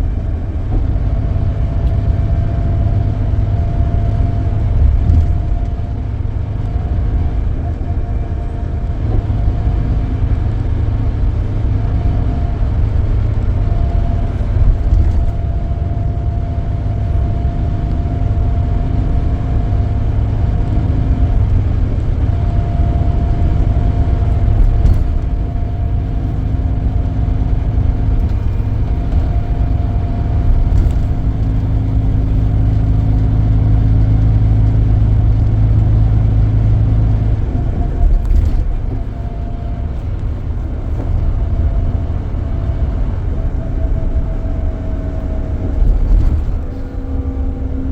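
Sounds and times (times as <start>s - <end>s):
bus engine and road rumble: 0.0s - 47.9s
whine: 0.0s - 47.9s.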